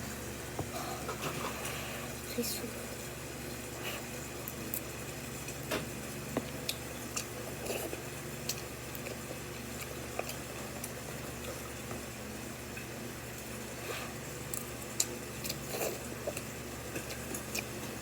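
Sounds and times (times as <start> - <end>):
low background hum: 0.0 - 18.0
chewing and utensil clicks: 14.5 - 17.8.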